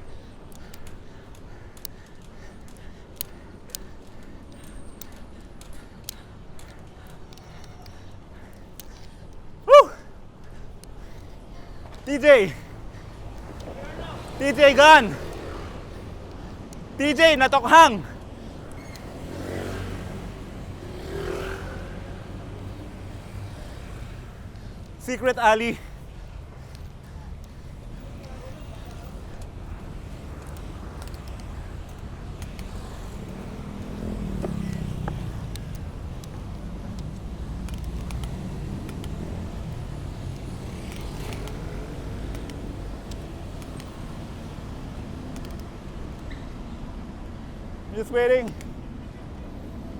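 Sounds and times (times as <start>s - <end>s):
cars passing: 0.0s - 49.9s
low traffic rumble: 0.0s - 49.9s
vehicle engine passing: 19.1s - 22.7s, 33.0s - 43.0s.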